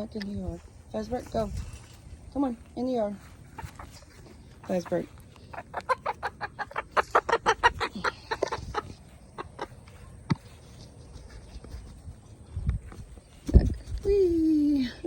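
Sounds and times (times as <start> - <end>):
hen clucking: 2.9 - 11.9.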